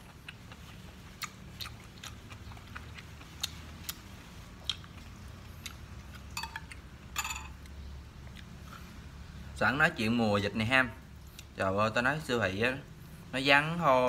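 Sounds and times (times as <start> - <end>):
person chewing food: 0.0 - 6.9, 7.6 - 9.2.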